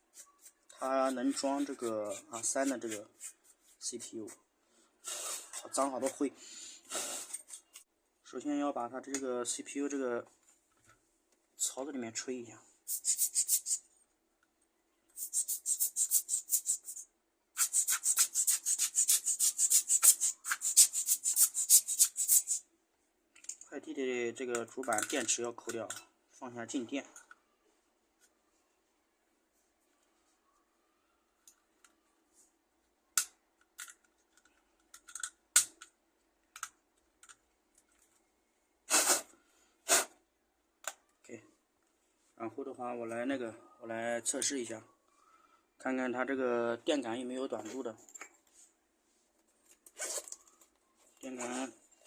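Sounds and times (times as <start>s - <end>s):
rasping brush strokes: 0.0s - 4.4s, 17.6s - 22.6s.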